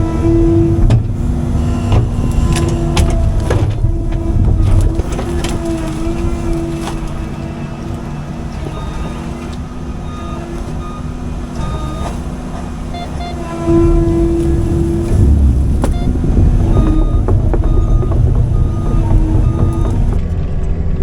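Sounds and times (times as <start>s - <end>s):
excavator engine and hydraulics: 0.0s - 21.0s
short electronic beeps: 15.8s - 19.9s.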